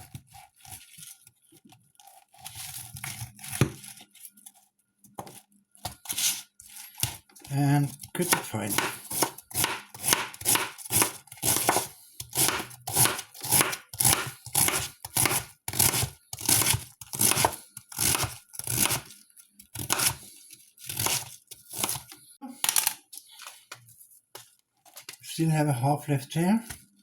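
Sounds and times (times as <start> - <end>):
knife slicing cabbage: 2.0 - 4.2, 5.2 - 22.2.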